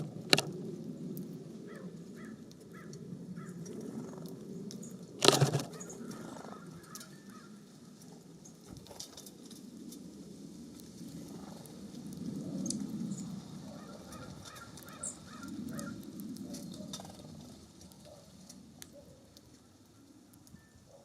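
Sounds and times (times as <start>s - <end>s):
bird calls: 5.2s - 7.6s, 13.1s - 17.2s.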